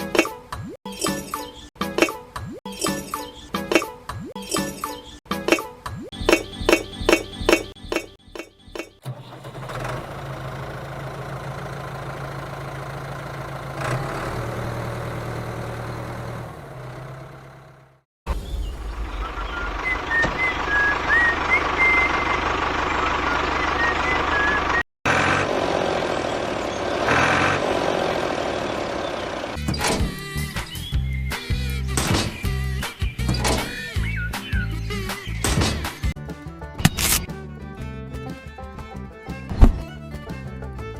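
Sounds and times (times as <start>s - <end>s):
model vehicle engine running: 9.0s - 18.0s, 19.4s - 29.6s.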